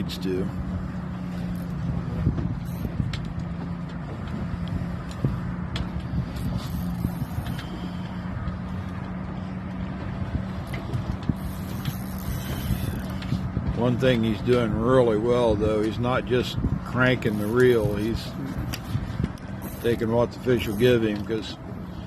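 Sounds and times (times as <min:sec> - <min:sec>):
motor humming and rumbling: 0:00.0 - 0:22.0
light clicks and knocks: 0:01.4 - 0:13.8, 0:14.4 - 0:14.8.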